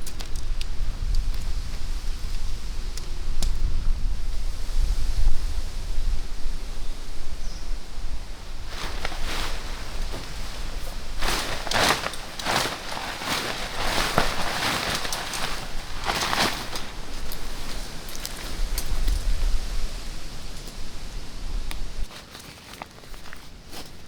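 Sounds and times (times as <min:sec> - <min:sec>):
rustling and crunching: 0:08.2 - 0:24.0.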